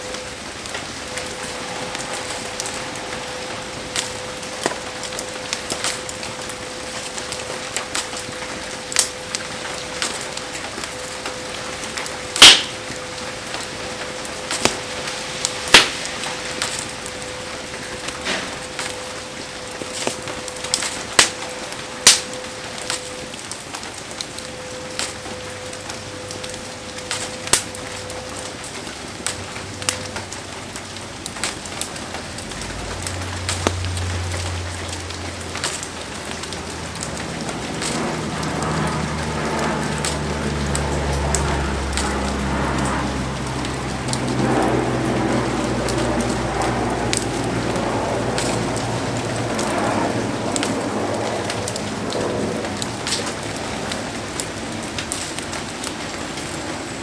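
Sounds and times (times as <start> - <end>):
fire cracking and popping: 0.0 - 57.0
heavy rain falling: 0.0 - 57.0.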